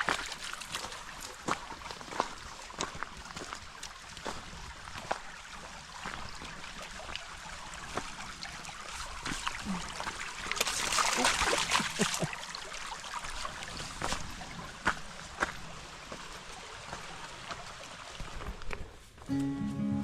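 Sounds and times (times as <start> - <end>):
footsteps on wet trail: 0.0 - 8.2, 13.3 - 19.8.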